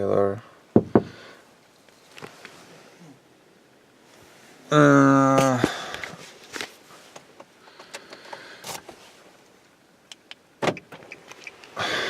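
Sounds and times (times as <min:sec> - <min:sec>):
faint rustling: 0:01.1 - 0:03.1.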